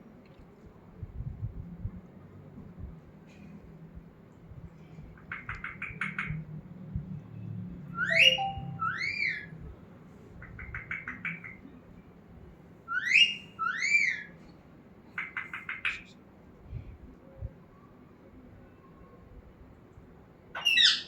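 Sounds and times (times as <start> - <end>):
parrot chirping: 8.0 - 9.4
parrot whistling: 8.0 - 9.4.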